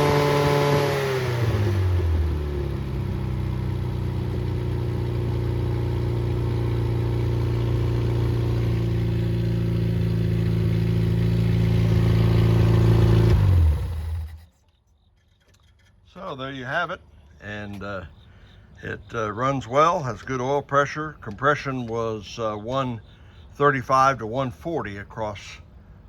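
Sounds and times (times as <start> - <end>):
car engine idling: 1.1 - 14.5.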